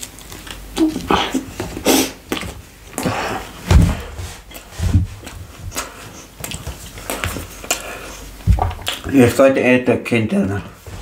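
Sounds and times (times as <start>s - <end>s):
close chewing with mouth clicks: 0.0s - 3.1s, 4.4s - 9.2s.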